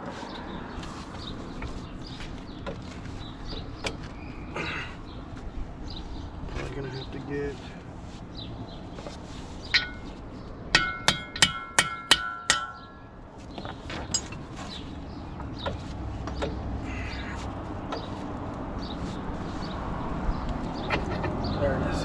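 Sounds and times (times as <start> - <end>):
hammer clanging on steel: 9.7 - 13.1.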